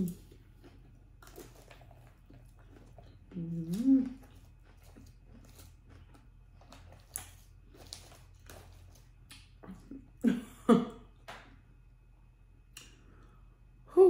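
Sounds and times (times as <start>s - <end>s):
chewing salad crunches: 0.0s - 9.8s
person humming: 3.3s - 4.2s.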